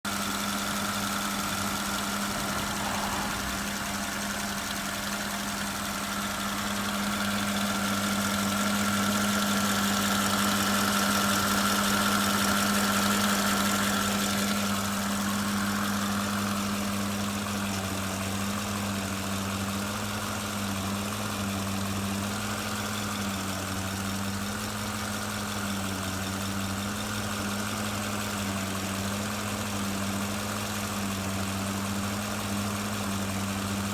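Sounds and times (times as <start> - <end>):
car engine idling: 0.1 - 33.9
high whine: 1.4 - 5.7.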